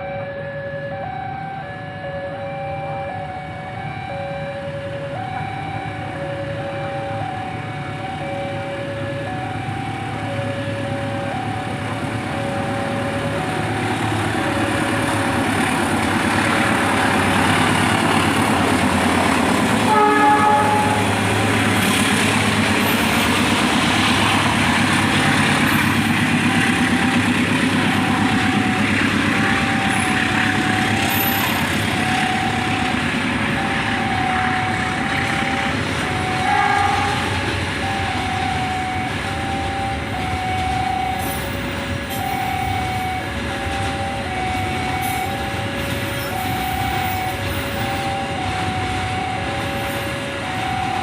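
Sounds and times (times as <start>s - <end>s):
two-tone crossing warning alarm: 0.0s - 51.0s
freight train rumbling past: 3.1s - 51.0s
train horn blast: 19.8s - 21.9s, 36.4s - 37.6s.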